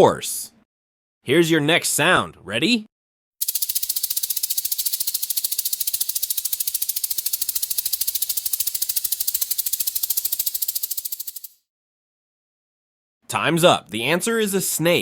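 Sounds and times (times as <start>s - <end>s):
rattlesnake tail rattle buzzing: 3.4s - 11.6s.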